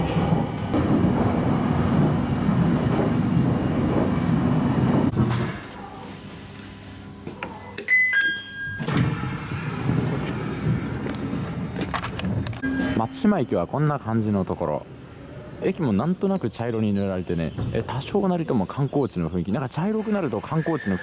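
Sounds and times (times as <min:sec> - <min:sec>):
train rumbling: 0:00.0 - 0:05.4, 0:09.0 - 0:14.3
train door sliding open: 0:08.8 - 0:13.0
two-note door chime: 0:12.6 - 0:13.5.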